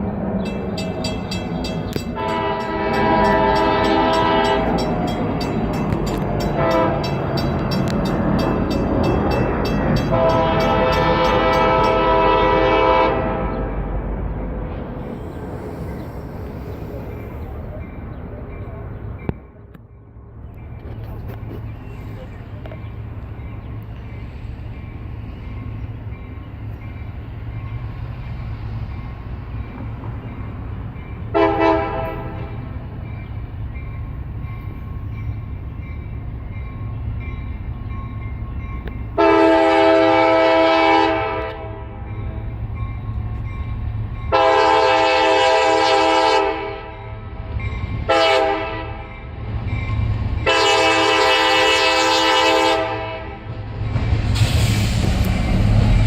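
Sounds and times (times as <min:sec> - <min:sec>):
locomotive rumble: 0:00.0 - 0:56.0
locomotive horn blasts: 0:02.1 - 0:04.9, 0:06.1 - 0:07.3, 0:10.0 - 0:13.8, 0:31.3 - 0:32.6, 0:39.2 - 0:42.0, 0:44.3 - 0:47.2, 0:48.0 - 0:49.2, 0:50.4 - 0:53.5.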